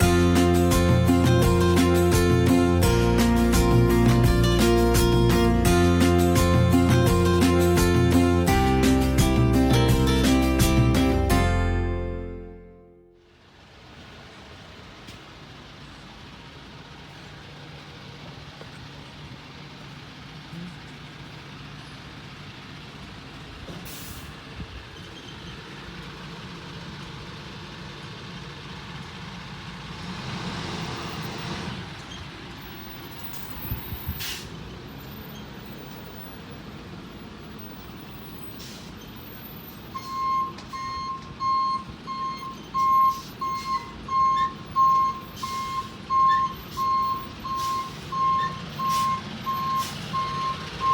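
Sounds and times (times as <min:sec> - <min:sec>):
garbage truck engine running: 0:00.0 - 0:12.6, 0:13.2 - 0:50.9
short sharp hisses: 0:34.1 - 0:34.6, 0:38.6 - 0:39.0
reversing alarm beeping: 0:39.9 - 0:50.9.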